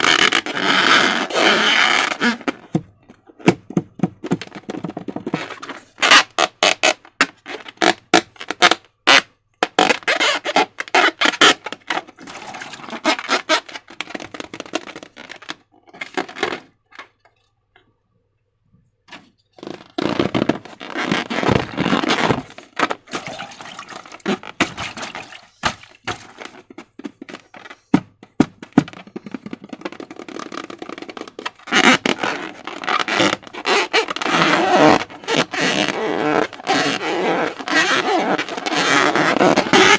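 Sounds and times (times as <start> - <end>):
slime squelching by hand: 23.1 - 26.3.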